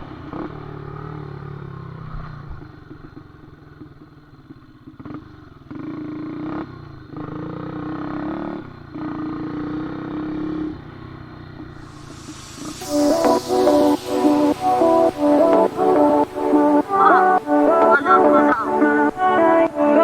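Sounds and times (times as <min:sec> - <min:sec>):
motorcycle engine revving: 0:00.0 - 0:12.8.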